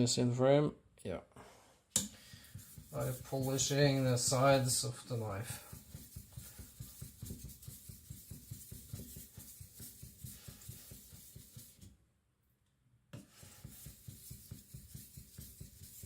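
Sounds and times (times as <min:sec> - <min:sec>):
cleaver scraping on whetstone: 0:02.3 - 0:04.4.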